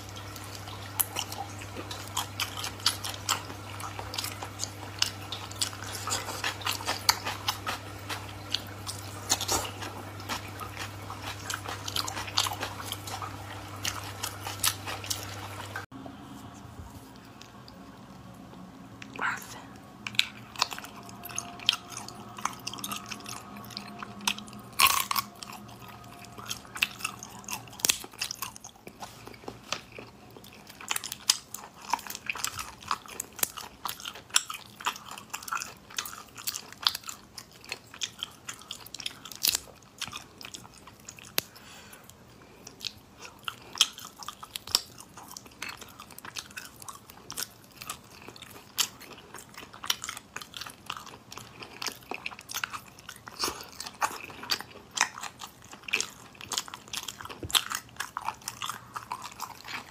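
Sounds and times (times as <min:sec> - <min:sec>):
person chewing and biting: 0:00.0 - 0:15.9, 0:19.1 - 0:59.9.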